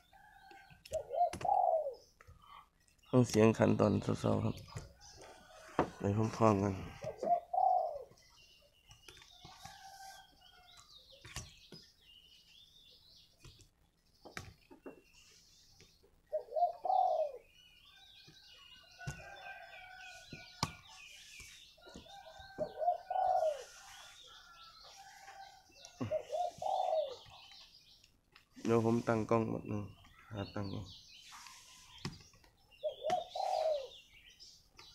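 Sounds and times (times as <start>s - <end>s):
small birds chirping: 0.0s - 34.9s
dove cooing: 0.2s - 2.6s, 6.7s - 8.2s, 16.3s - 17.5s, 21.8s - 27.5s, 32.8s - 34.1s.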